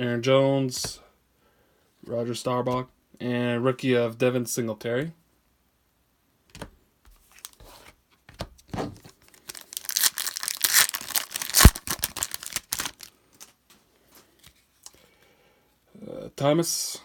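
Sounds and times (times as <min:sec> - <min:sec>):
wrapper tearing and crinkling: 0:09.2 - 0:13.6.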